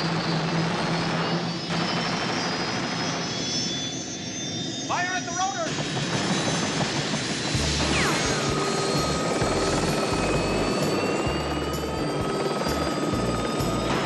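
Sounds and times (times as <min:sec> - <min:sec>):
helicopter turbine and rotor: 0:00.0 - 0:14.0
dramatic music score: 0:06.0 - 0:14.0.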